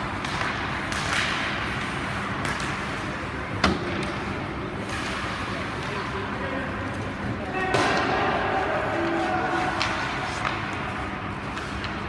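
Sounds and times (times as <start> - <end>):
sharp puck or stick crack: 0.0 - 6.1, 9.0 - 10.9
skates and arena noise: 0.0 - 12.0.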